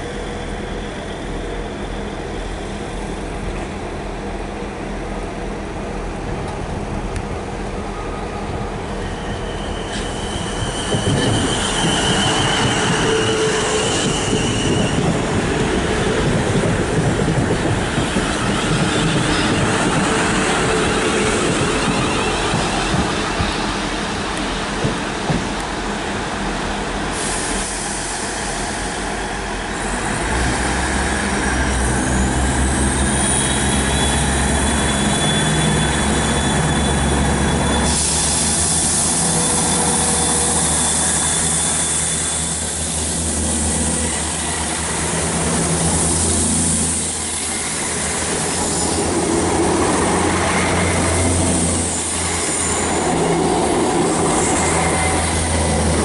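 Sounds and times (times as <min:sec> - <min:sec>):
train motor whine: 0:08.9 - 0:23.8
rush of hiss and wheel noise: 0:22.6 - 0:56.0.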